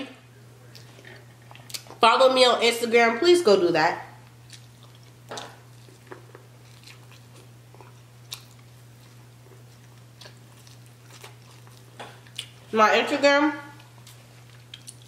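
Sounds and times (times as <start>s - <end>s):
steady low hum: 0.0s - 15.0s
chewing corn on the cob: 4.2s - 12.6s, 13.8s - 15.0s.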